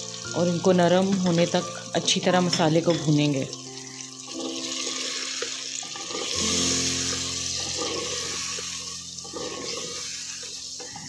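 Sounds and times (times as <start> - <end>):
tomatoes sizzling in hot oil: 0.0 - 11.0
spatula scraping and tapping pot: 9.2 - 11.0.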